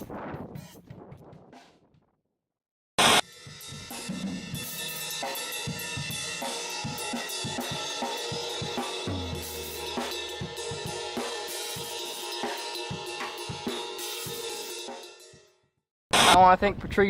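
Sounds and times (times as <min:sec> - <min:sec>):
rock music with drum kit: 0:00.0 - 0:01.5, 0:03.0 - 0:15.4
loud cymbal crash: 0:03.0 - 0:15.4.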